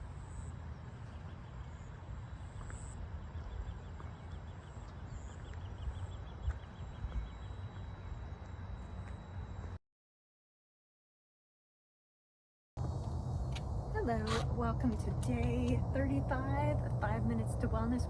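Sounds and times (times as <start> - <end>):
steady low rumble: 12.8 - 18.0.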